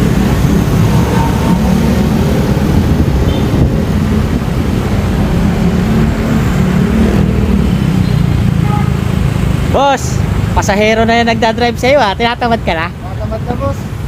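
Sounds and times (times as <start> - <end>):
motorcycle engine rumble: 0.0 - 10.9.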